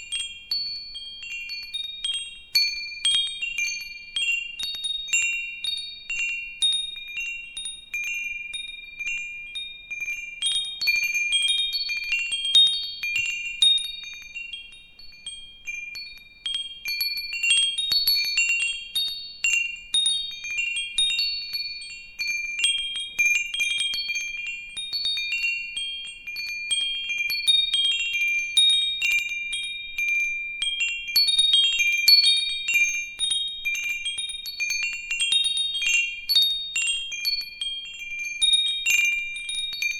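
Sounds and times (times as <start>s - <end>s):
wind chimes ringing: 0.0s - 39.9s.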